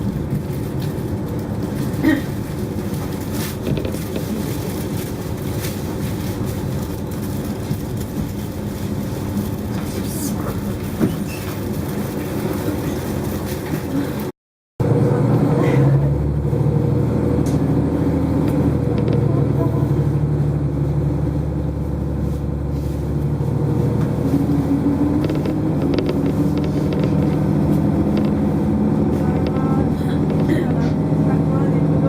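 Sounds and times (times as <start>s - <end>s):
railcar engine rumble: 0.0s - 32.0s
faint clicks and rattles: 25.2s - 30.6s.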